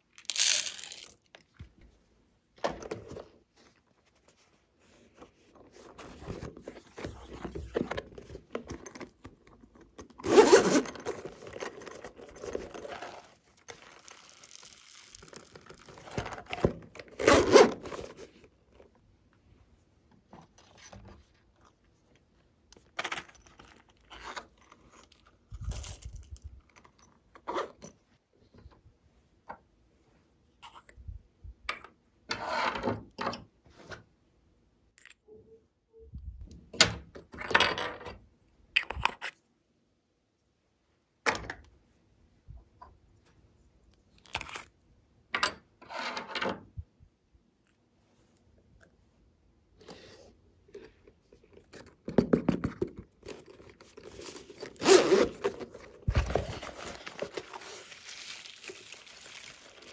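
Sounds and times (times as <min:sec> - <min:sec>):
hands scraping and rustling slime: 0:55.7 - 0:59.9.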